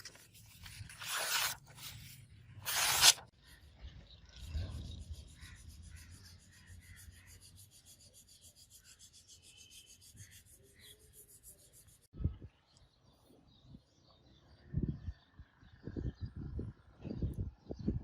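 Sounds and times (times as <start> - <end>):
fast rubbing strokes: 0.0 - 3.3, 5.3 - 12.1.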